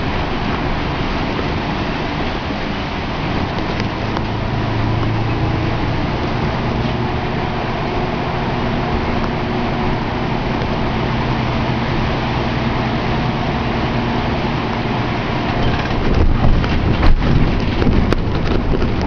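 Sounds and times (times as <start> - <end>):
rain hiss: 0.0 - 19.0
vehicle engine running: 0.0 - 19.0
irregular knocks and rustles: 15.5 - 19.0.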